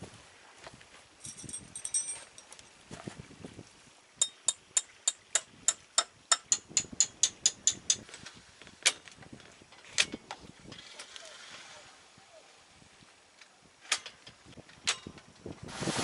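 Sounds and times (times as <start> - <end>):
hammer striking metal tent peg: 4.2 - 8.0.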